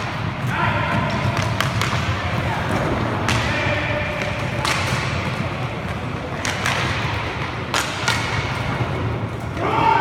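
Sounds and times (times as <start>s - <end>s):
stick hitting puck: 0.9s - 8.7s.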